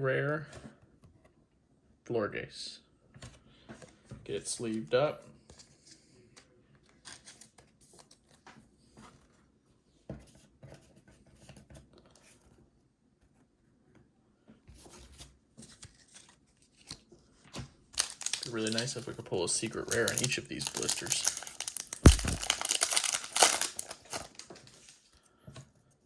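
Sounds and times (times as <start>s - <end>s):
packaging tearing and crinkling: 18.0s - 24.9s
packaging rustling: 18.0s - 25.1s.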